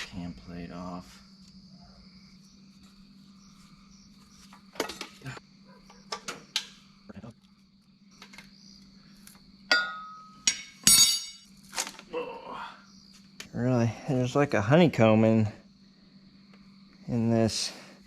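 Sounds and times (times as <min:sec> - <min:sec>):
loud ringing steel clang: 0:09.7 - 0:11.5
metal parts and tools clinking: 0:09.7 - 0:12.0.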